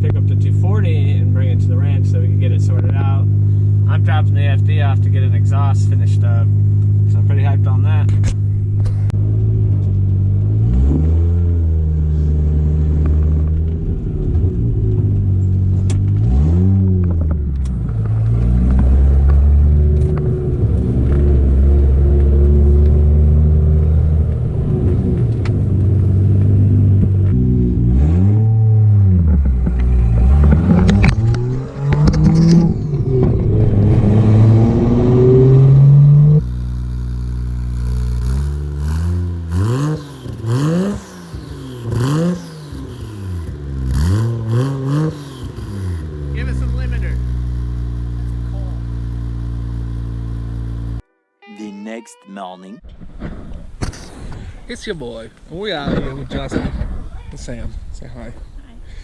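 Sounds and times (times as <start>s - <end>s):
rotary engine revving: 10.4s - 13.6s, 14.2s - 51.0s.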